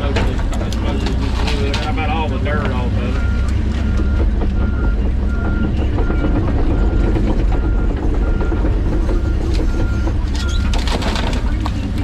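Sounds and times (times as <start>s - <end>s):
excavator diesel engine running: 0.0s - 12.0s
faint backup alarm beeping: 2.7s - 10.7s.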